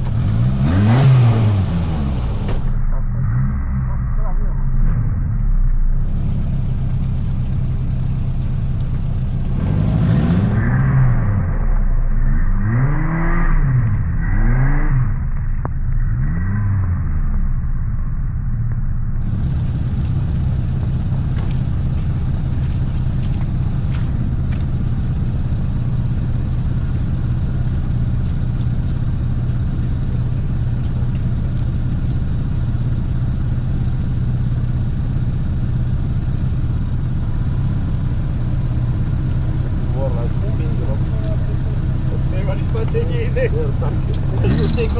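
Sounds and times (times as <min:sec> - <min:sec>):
vehicle engine revving: 0:00.0 - 0:17.6, 0:19.2 - 0:31.8, 0:36.9 - 0:44.9.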